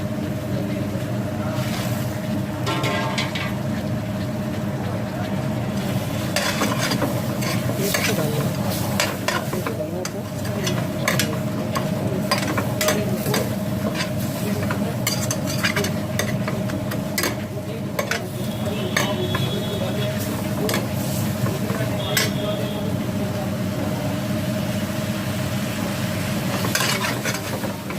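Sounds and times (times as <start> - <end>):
food sizzling in a pan: 5.7 - 27.9
spoon scraping and clicking on pan: 6.4 - 8.2, 9.0 - 17.4, 26.5 - 27.7.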